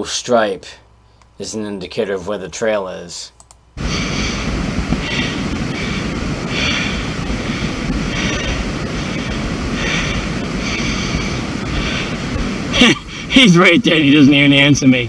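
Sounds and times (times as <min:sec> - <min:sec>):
wind buffeting microphone: 0:03.8 - 0:13.6.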